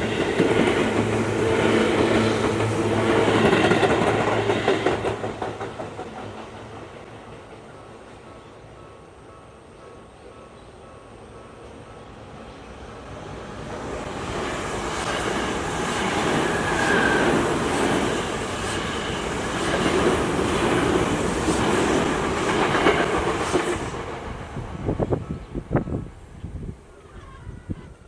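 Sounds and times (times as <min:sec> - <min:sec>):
train wheels clacking over rail joints: 0:00.0 - 0:06.9, 0:14.9 - 0:24.0.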